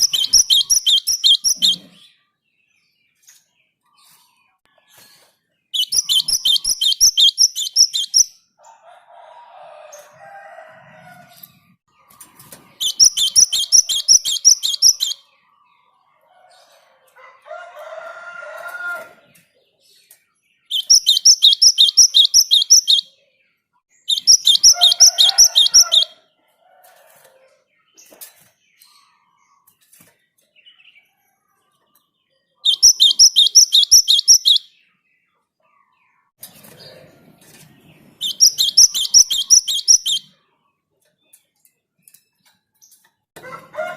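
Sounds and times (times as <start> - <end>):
bird high chipping notes: 0.0 - 2.0, 5.8 - 8.4, 12.8 - 15.3, 20.7 - 23.0, 24.1 - 26.1, 32.7 - 34.7, 38.2 - 40.3.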